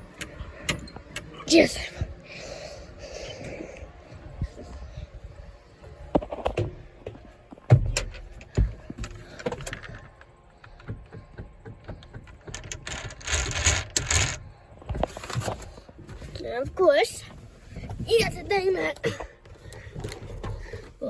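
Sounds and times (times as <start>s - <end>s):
knocks clicks and rattles: 6.2s - 15.8s.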